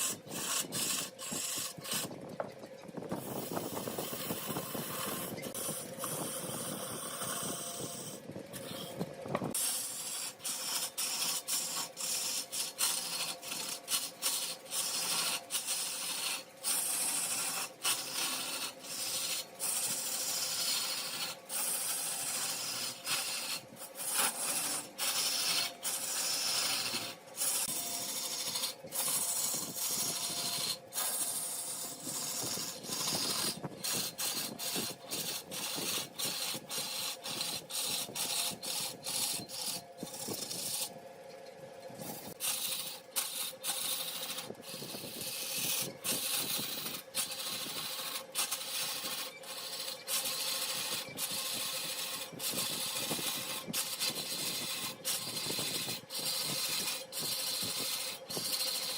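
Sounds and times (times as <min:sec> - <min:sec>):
low steady rumble: 0:00.0 - 0:47.0
cutting tool scraping spinning wood: 0:00.0 - 0:58.9
faint lathe hum: 0:00.0 - 0:58.9.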